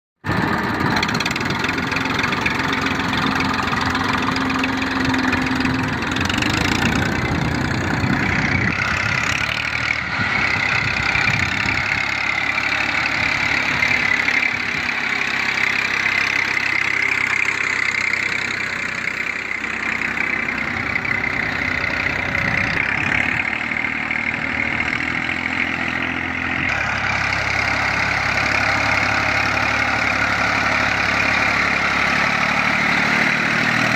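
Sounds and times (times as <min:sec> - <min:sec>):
tractor engine running: 0:00.2 - 0:33.9.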